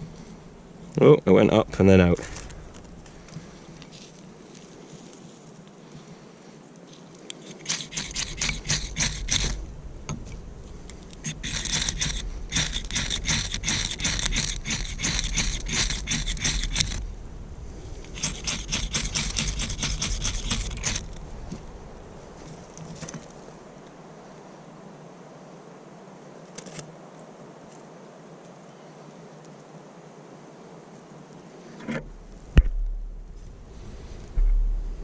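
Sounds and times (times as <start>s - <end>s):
rapid scraping strokes: 7.4s - 9.6s, 11.2s - 17.0s, 18.0s - 21.2s.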